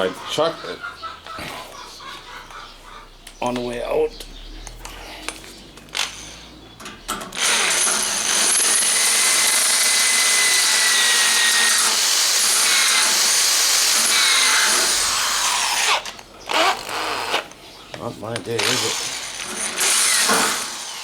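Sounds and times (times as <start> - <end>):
drill clicks: 7.3 - 17.4
electric drill boring into steel: 7.4 - 17.4, 18.6 - 21.0.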